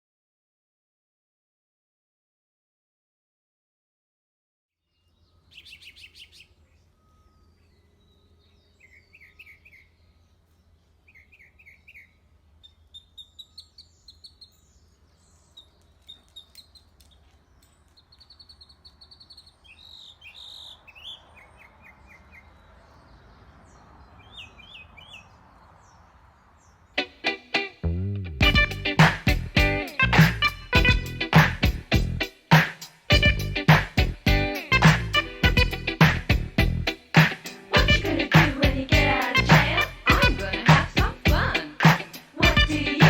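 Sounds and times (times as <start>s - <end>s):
small birds chirping and singing: 4.8s - 27.8s, 33.1s - 43.0s.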